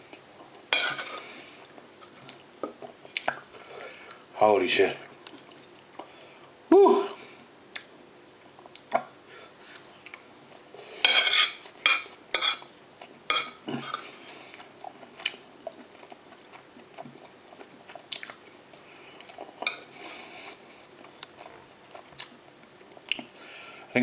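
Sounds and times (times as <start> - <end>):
cutlery clinking on a plate: 11.0 - 12.6.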